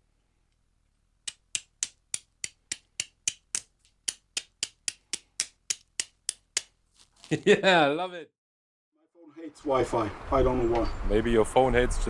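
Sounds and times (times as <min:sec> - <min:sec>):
sharp clicks: 0:01.2 - 0:06.8.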